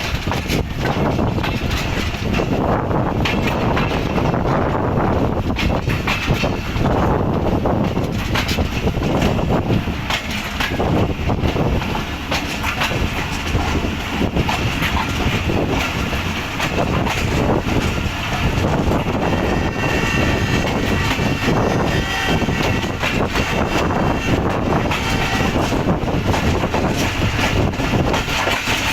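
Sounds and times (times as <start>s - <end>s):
train coaches rolling: 0.0s - 28.9s
wheel clicks over rails: 0.0s - 28.9s.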